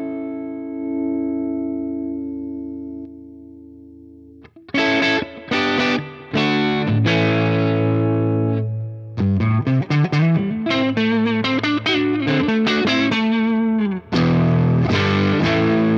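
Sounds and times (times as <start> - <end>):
overdriven electric guitar: 0.0 - 15.9.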